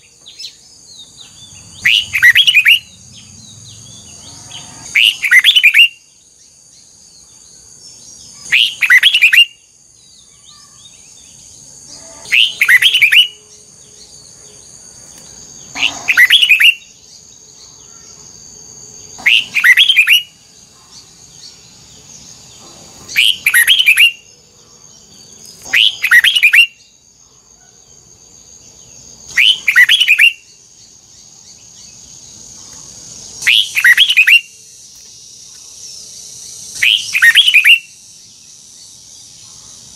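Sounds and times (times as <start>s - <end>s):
bird singing whistled phrases: 1.8s - 2.9s, 4.9s - 6.1s, 8.4s - 9.6s, 12.3s - 13.4s, 15.8s - 17.0s, 19.2s - 20.4s, 23.1s - 24.3s, 25.6s - 26.9s, 29.3s - 30.5s, 33.4s - 34.6s, 36.7s - 38.0s.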